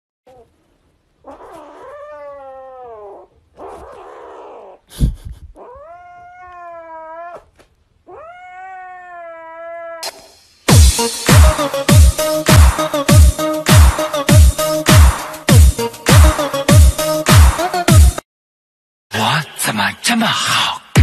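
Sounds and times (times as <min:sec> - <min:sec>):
kitten yowling: 0:01.2 - 0:04.8, 0:05.6 - 0:10.1.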